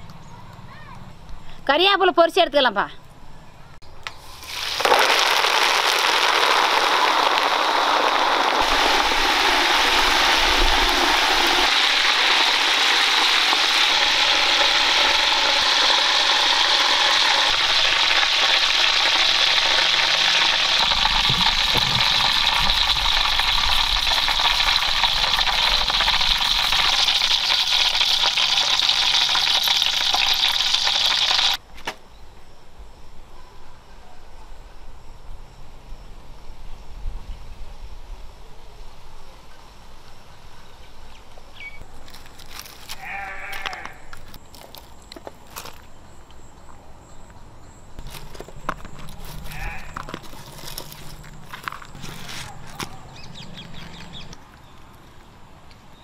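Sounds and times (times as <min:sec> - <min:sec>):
food deep-frying in oil: 0:04.1 - 0:31.6.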